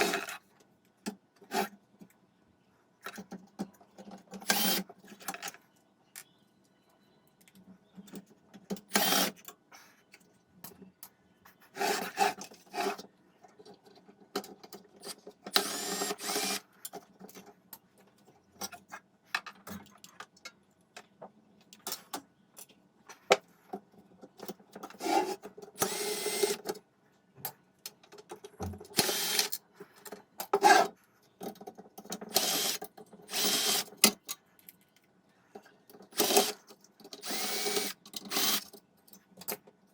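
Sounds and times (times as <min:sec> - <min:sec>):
small electric power tool running: 0:29.0 - 0:29.5, 0:32.3 - 0:33.9, 0:36.2 - 0:36.5, 0:37.2 - 0:38.6.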